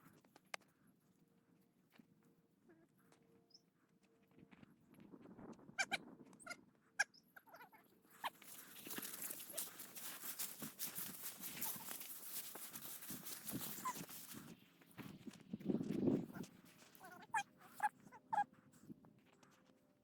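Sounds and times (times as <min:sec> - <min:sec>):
dry grass rustling underfoot: 0:08.1 - 0:17.9
dog whining: 0:13.6 - 0:14.2, 0:17.0 - 0:18.4.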